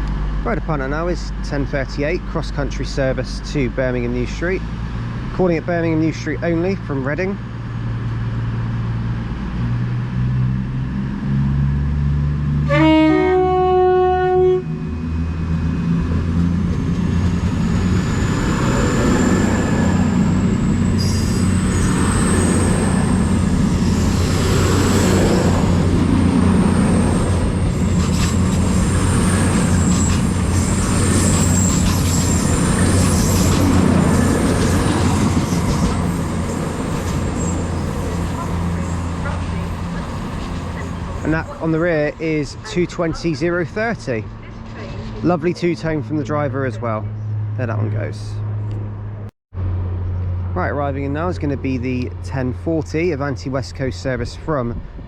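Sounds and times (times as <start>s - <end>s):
diesel train engines: 0.0s - 55.0s
rail noise: 0.0s - 55.0s
two-tone train horn: 12.6s - 15.0s.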